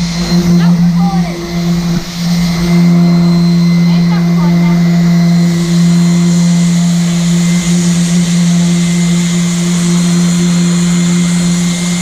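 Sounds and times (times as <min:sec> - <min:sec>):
power sander motor hum: 0:00.0 - 0:12.0
sanding hiss: 0:00.0 - 0:12.0.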